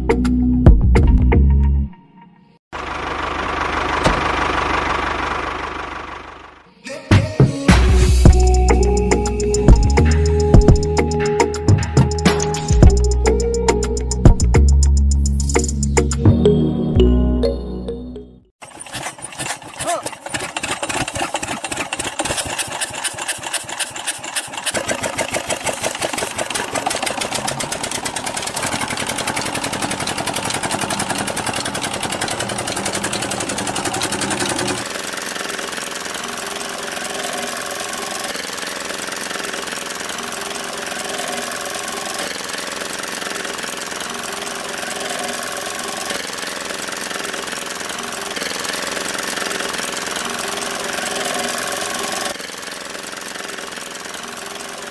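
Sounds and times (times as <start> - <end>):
model engine chugging: 2.8 - 6.7, 18.6 - 54.9.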